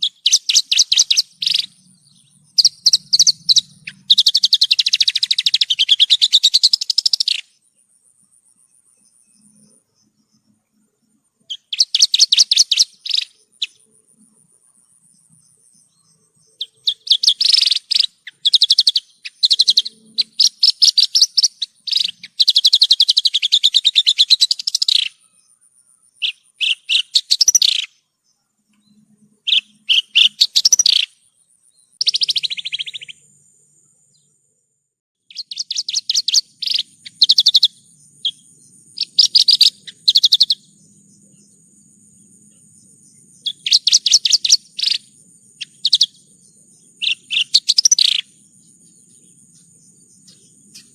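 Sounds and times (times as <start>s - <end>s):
bird singing rapid trills: 0.0s - 34.4s, 35.2s - 50.9s.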